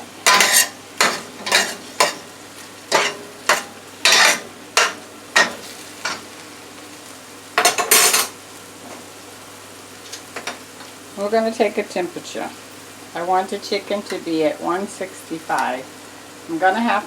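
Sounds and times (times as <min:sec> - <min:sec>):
chicken sizzling in a frying pan: 0:00.0 - 0:17.0
utensil scraping a pan: 0:00.2 - 0:02.3, 0:02.9 - 0:06.2.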